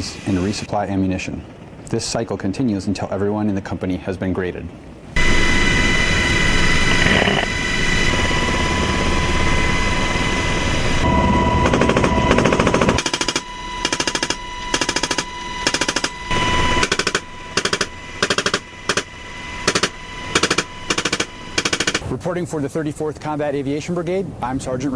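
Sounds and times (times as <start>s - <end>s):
helicopter noise with whine: 0.0s - 4.0s, 4.8s - 22.2s
machine gun firing bursts: 11.6s - 16.2s, 16.8s - 22.0s.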